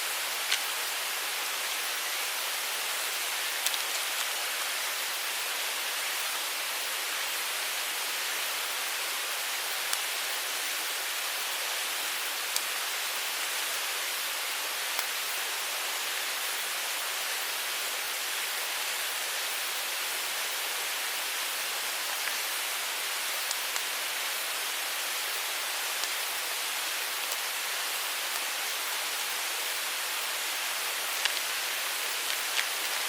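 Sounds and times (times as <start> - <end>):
mountain stream flowing: 0.0 - 33.0
faint clicks: 3.6 - 4.4.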